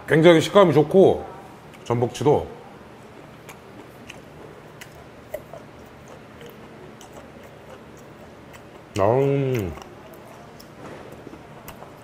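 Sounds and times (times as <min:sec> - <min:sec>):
man chewing with wet mouth clicks: 0:03.0 - 0:12.0.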